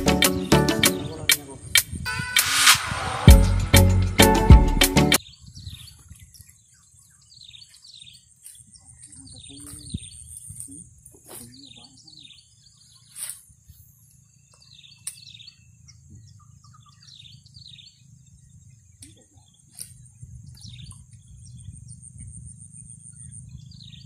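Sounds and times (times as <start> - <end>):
low rumble: 2.1 - 4.7
small birds chirping: 5.2 - 24.0.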